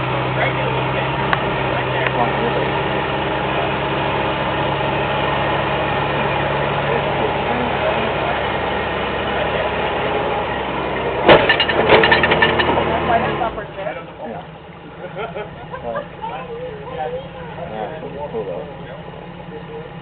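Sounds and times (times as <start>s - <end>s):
engine running at low revs: 0.0s - 20.0s
clattering knocks: 11.2s - 12.9s.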